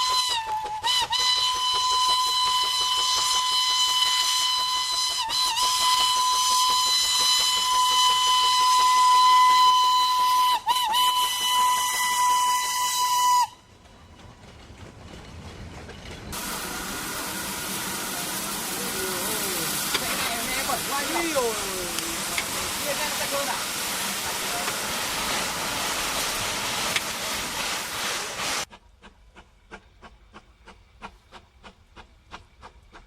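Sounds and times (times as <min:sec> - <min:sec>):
steam hiss: 0:00.0 - 0:13.5, 0:16.3 - 0:33.0
steam locomotive whistle: 0:00.0 - 0:13.7, 0:16.4 - 0:28.7.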